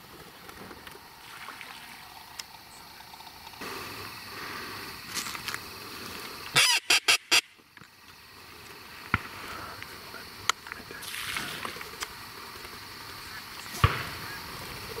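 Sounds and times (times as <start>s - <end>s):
duck quacking: 6.6s - 7.5s.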